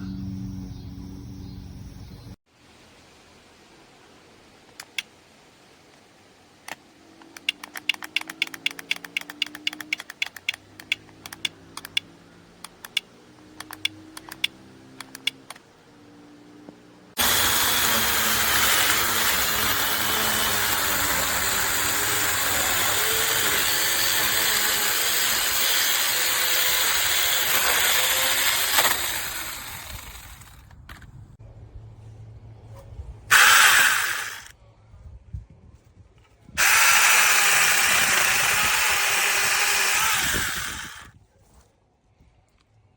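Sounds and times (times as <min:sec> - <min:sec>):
faint rapid clicking: 0:06.7 - 0:15.6
mini chainsaw running: 0:07.4 - 0:12.1, 0:17.2 - 0:30.7, 0:33.3 - 0:34.5, 0:36.6 - 0:41.1.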